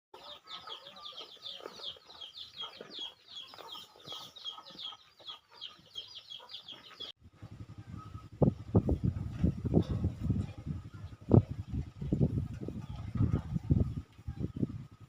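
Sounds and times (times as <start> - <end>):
birds chirping: 0.2 - 15.0.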